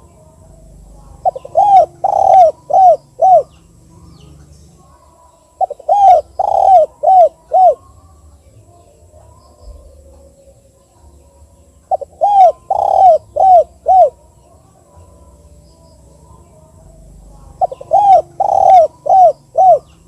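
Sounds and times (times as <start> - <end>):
dove cooing: 0.0 - 8.0, 11.9 - 14.5, 16.4 - 20.0.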